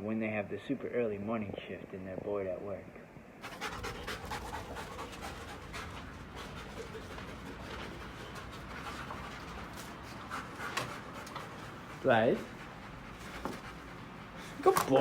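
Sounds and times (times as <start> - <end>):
dog panting: 3.4 - 15.0.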